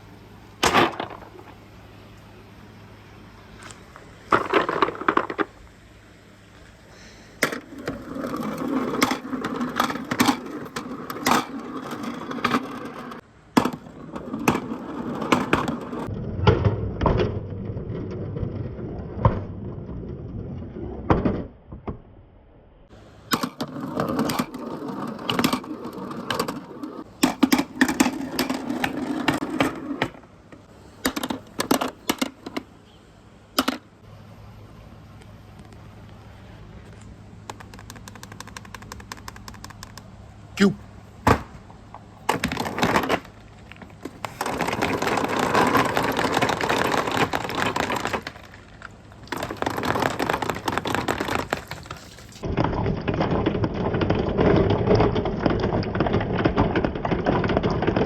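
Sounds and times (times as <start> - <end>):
marbles rolling on track: 3.6 - 5.5, 7.4 - 16.1, 23.4 - 30.2, 42.3 - 58.0
marbles clacking: 4.3 - 5.6, 7.4 - 16.1, 23.4 - 30.2, 42.2 - 58.0.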